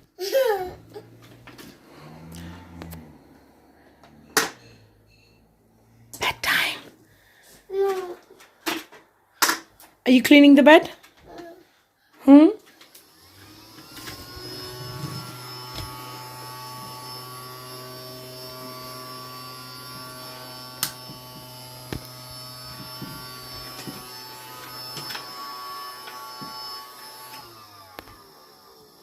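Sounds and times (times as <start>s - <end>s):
vacuum cleaner motor humming: 0.9s - 3.4s, 12.8s - 29.0s
vacuum cleaner winding down: 1.2s - 4.2s, 12.8s - 29.0s.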